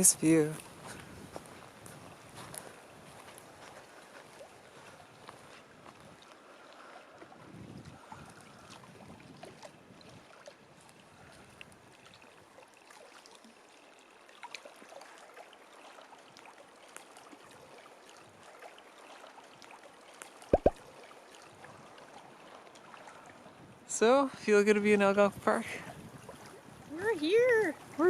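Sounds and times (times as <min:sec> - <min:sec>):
water gurgling: 0:12.0 - 0:23.4.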